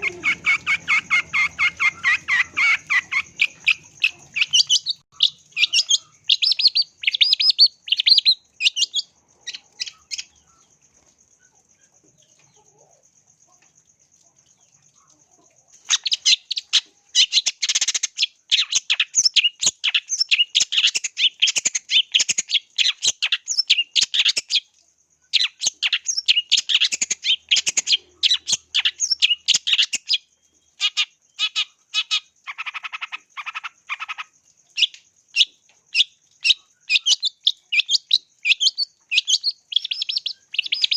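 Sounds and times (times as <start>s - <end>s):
faint steady high tone: 0.0s - 0.5s
bird singing fast chirps: 0.0s - 10.7s, 25.3s - 40.9s.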